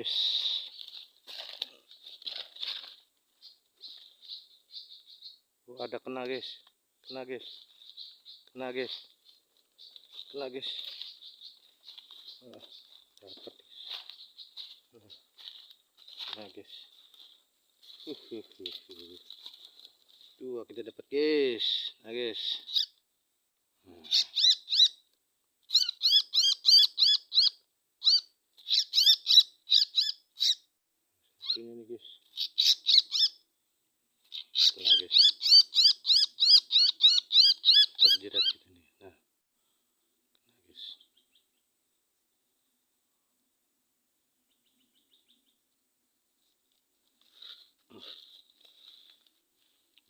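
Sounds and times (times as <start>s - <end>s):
small bird chirping: 3.3s - 6.1s, 7.0s - 15.4s, 22.6s - 23.0s, 24.0s - 33.6s, 34.2s - 38.8s, 40.6s - 42.8s, 44.4s - 46.3s
high bird chirps: 3.4s - 5.9s, 24.1s - 25.0s, 25.7s - 31.6s, 32.3s - 33.4s, 34.3s - 38.6s.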